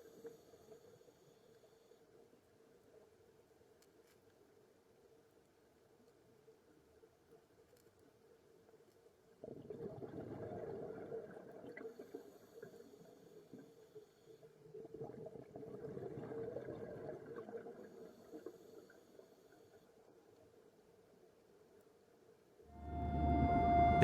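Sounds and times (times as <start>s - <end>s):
underwater bubbling and rumbling: 9.4s - 12.6s, 14.6s - 18.4s.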